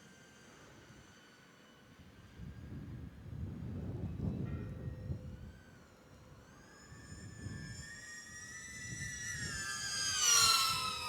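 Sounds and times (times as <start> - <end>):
wind rumble on microphone: 2.4 - 5.5.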